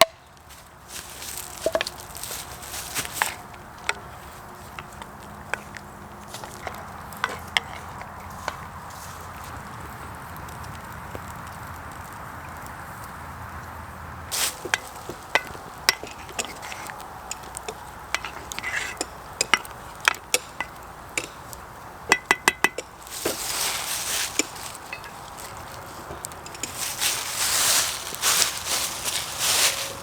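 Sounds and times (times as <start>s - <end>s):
utensils clinking against cookware: 14.3s - 30.0s.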